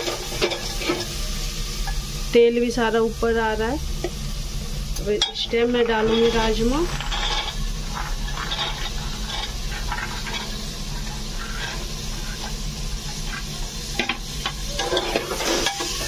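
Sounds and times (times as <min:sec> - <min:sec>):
beans sizzling in hot oil: 0:00.0 - 0:16.0
steady low hum: 0:00.2 - 0:15.0
metal spatula scraping a pot: 0:05.2 - 0:16.0.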